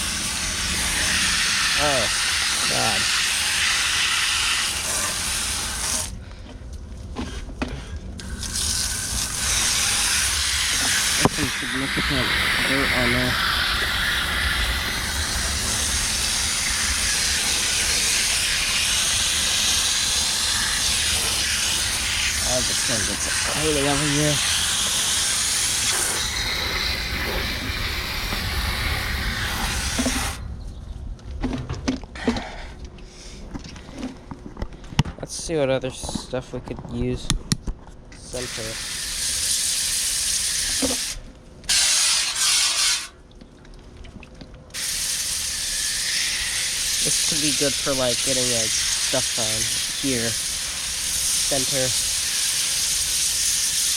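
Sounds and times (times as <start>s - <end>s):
hose nozzle spray hissing: 0.0s - 6.1s, 8.2s - 30.4s, 38.3s - 43.1s, 44.8s - 53.9s.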